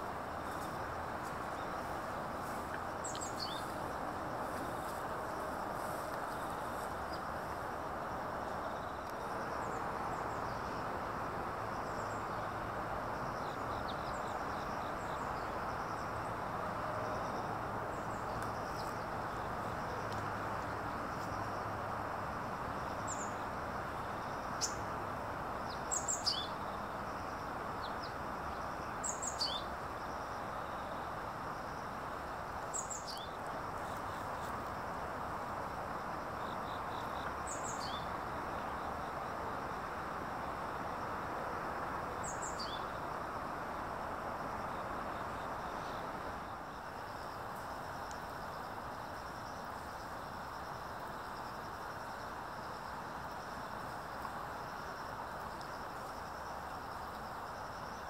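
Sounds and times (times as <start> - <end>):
steady background noise: 0.0 - 58.0
songbird calling: 1.5 - 3.8, 25.7 - 26.9, 28.8 - 29.7, 32.7 - 33.4, 36.4 - 38.9, 42.2 - 43.0.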